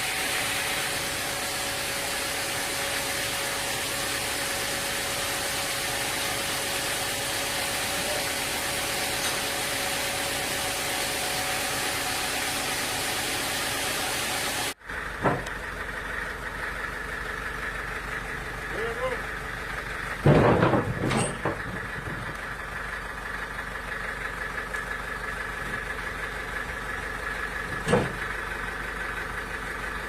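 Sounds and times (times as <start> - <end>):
sawmill machinery hissing: 0.0 - 14.8
low engine hum: 0.0 - 30.0.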